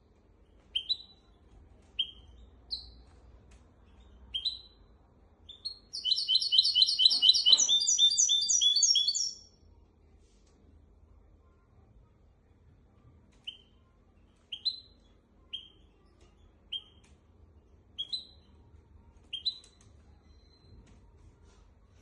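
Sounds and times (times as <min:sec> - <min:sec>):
finch singing sharp notes: 0:05.6 - 0:09.4.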